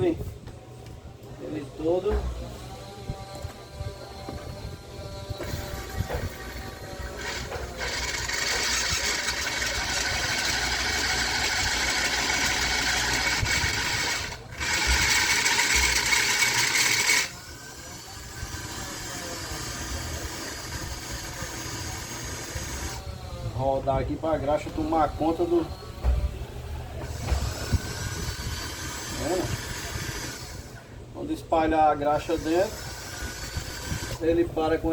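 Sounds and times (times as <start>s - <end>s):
food processor motor whining: 5.3s - 17.4s.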